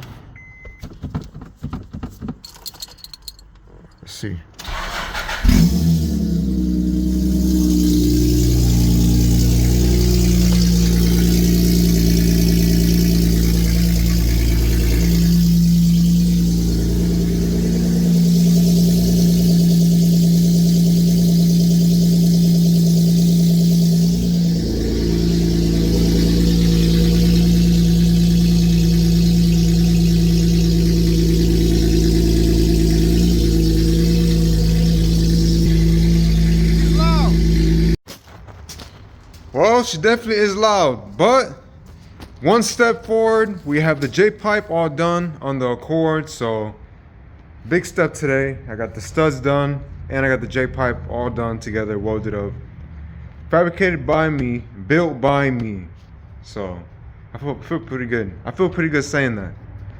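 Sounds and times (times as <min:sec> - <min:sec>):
car engine cold start: 0:04.6 - 0:38.0
loud car engine idling: 0:04.7 - 0:38.0.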